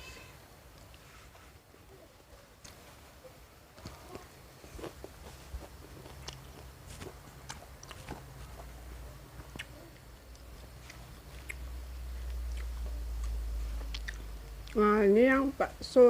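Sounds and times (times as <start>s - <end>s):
low steady rumble: 0.0s - 16.0s
chewing fried food: 3.8s - 14.8s
mouth clicks and smacks: 9.4s - 14.8s.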